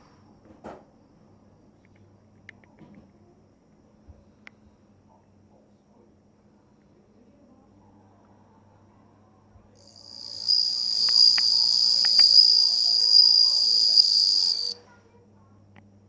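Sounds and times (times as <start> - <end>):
cricket trilling: 9.8 - 14.8.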